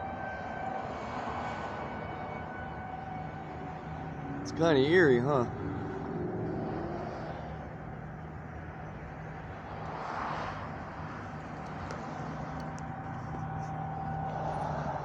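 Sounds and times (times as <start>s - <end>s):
low metallic trumpet-like drone: 0.0s - 6.9s.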